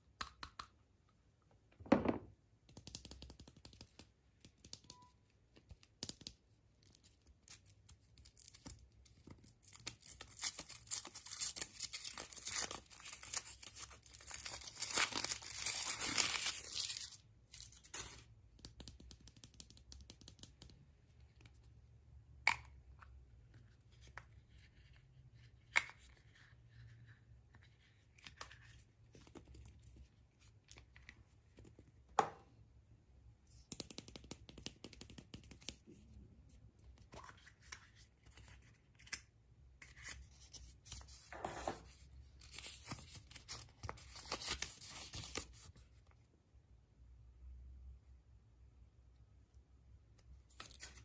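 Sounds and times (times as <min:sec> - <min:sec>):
wrapping tearing and crinkling: 0:09.5 - 0:18.2.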